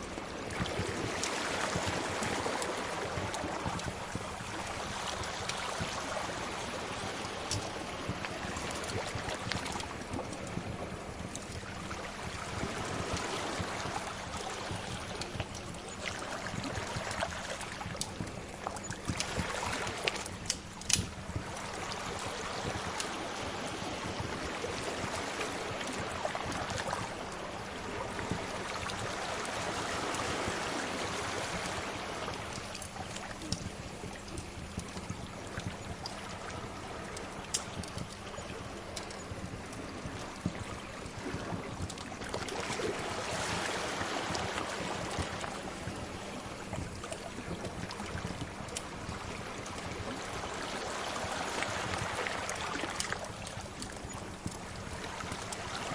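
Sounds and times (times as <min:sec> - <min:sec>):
sea waves washing in: 0:00.0 - 0:55.9
wood fire crackling and popping: 0:20.1 - 0:21.2.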